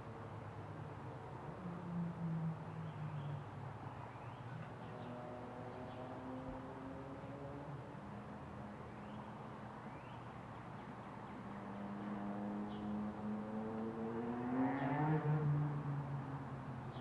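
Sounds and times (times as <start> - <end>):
passing vehicle engine hum: 13.4 - 16.5.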